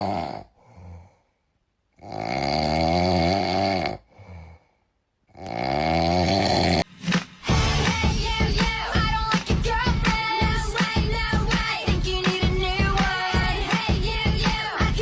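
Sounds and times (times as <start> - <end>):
loud snoring: 0.0 - 1.1, 2.0 - 4.6, 5.3 - 6.8
quiet breath out: 0.5 - 1.5, 4.0 - 5.0.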